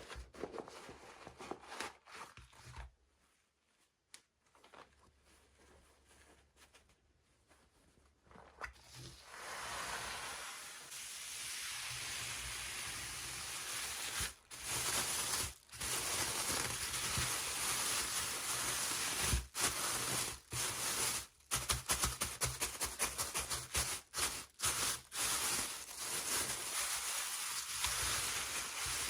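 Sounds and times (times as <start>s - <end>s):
packaging rustling and tearing: 13.8s - 29.0s.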